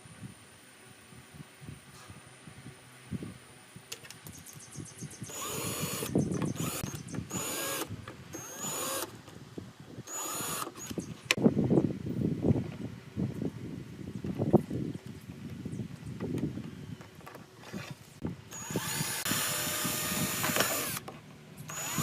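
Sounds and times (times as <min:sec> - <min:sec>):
power drill whining: 0:05.3 - 0:09.1, 0:10.1 - 0:11.0, 0:18.5 - 0:21.0, 0:21.7 - 0:22.0.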